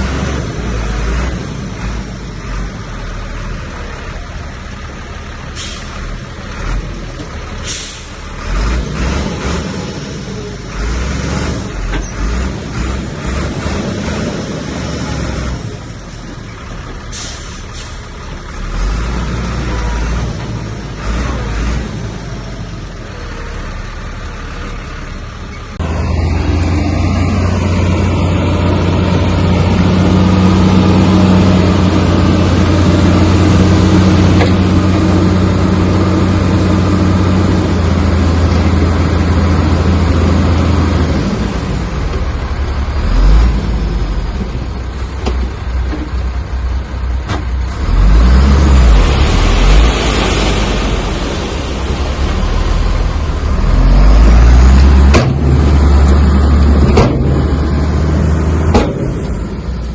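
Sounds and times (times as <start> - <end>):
diesel engine drone: 0.0 - 59.9
deep rumbles and thumps: 54.9 - 59.9.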